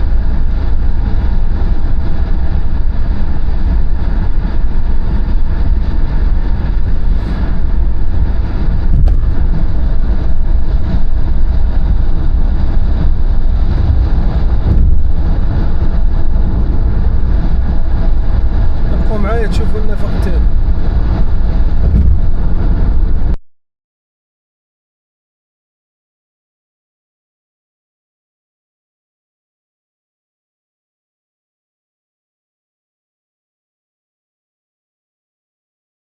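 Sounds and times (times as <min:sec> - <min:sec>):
car road and engine rumble: 0:00.0 - 0:23.4.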